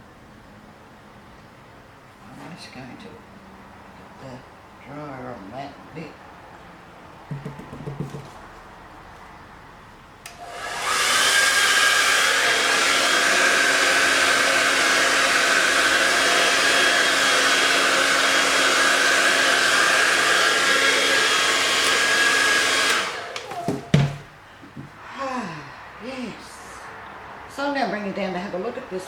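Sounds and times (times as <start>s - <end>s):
light knocks: 7.3s - 8.5s
hair dryer switch click: 10.2s - 10.5s, 21.7s - 23.5s
hair dryer blowing with whirring hiss: 10.3s - 24.2s.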